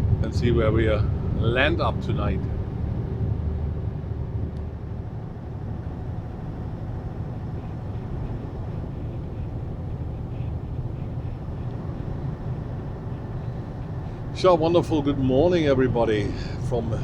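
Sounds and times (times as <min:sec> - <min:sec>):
road noise: 0:00.0 - 0:17.0
truck engine drone: 0:00.0 - 0:17.0.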